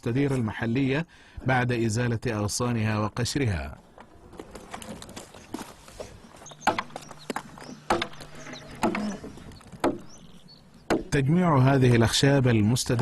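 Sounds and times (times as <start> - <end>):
axe chopping a log: 6.6 - 7.0, 7.9 - 9.2, 9.8 - 10.1, 10.9 - 11.1.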